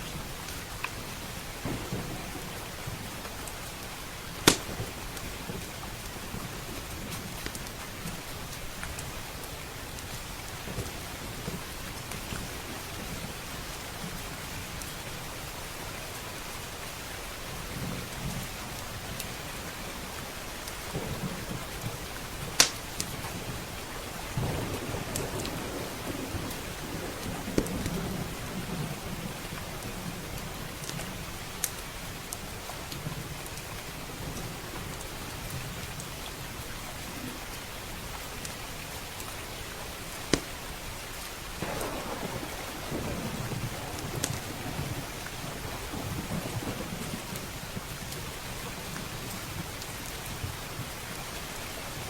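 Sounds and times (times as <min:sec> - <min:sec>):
heavy rain: 0:00.0 - 0:52.0
wood fire crackling: 0:00.3 - 0:13.4, 0:20.1 - 0:28.6, 0:29.2 - 0:36.2, 0:38.4 - 0:52.0
low rolling thunder: 0:01.1 - 0:07.1, 0:20.9 - 0:31.4, 0:41.6 - 0:49.8.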